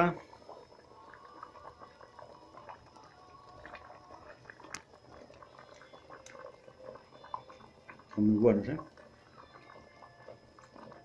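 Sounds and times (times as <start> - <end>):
stew bubbling in a pot: 0.0 - 11.0
small ticks: 4.5 - 8.2.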